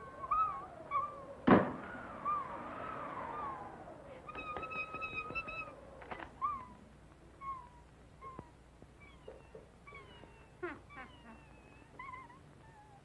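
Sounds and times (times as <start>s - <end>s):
squeaky animal-like cartoon cries: 7.4s - 13.0s.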